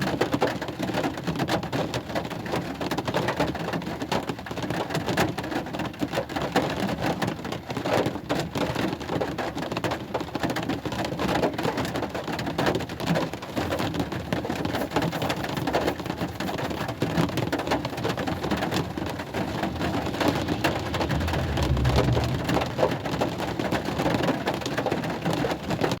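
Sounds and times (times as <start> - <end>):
rain falling: 13.5 - 23.5
low rumble: 18.1 - 23.8.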